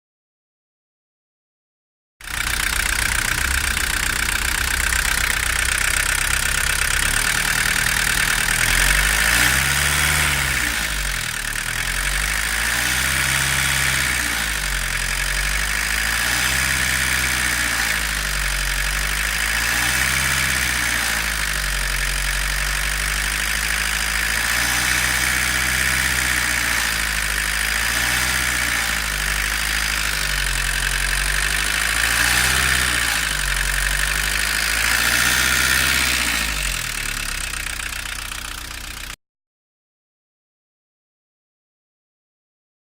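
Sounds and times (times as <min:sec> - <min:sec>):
diesel engine idling: 0:02.2 - 0:39.2
low hum: 0:02.3 - 0:08.3.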